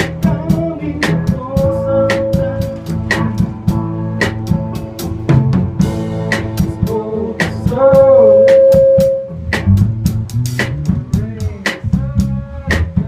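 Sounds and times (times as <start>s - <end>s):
drum kit beat: 0.0s - 13.0s
live band playing: 0.0s - 13.0s
long held note: 8.0s - 9.4s.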